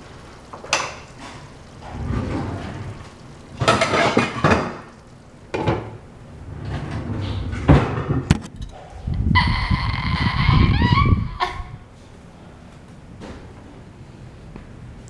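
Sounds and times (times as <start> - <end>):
dishes and cutlery clattering: 3.6 - 4.9.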